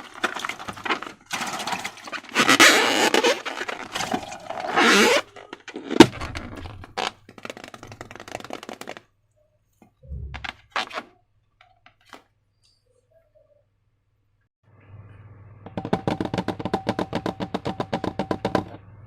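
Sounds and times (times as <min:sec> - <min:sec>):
balloon popping crack: 0:00.4 - 0:09.1.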